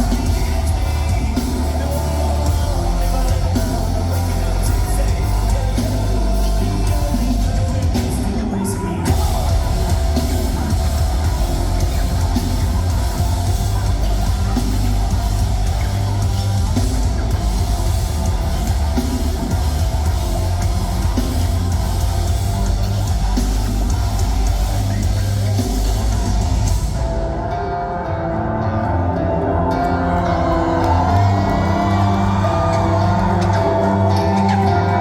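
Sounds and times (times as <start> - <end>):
drum kit with crashing cymbals: 0.0 - 27.2
distorted electric guitar: 0.0 - 35.0
heavy bass: 0.0 - 35.0.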